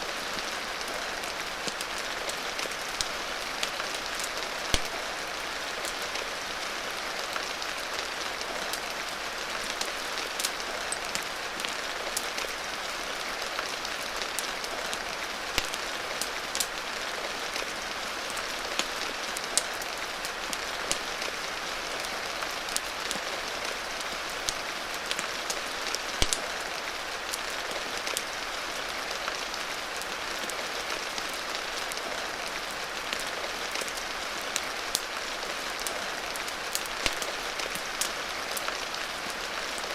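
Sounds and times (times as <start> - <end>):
rain hiss: 0.0 - 39.9
wood fire pops and crackles: 4.2 - 5.2, 15.5 - 16.7, 24.4 - 26.8, 36.7 - 38.2.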